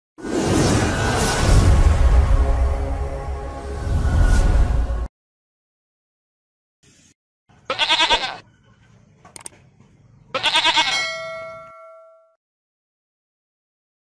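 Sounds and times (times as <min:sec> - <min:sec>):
goat bleating: 0:07.6 - 0:08.4, 0:10.3 - 0:11.1
ringing bell-like tone: 0:10.9 - 0:12.4.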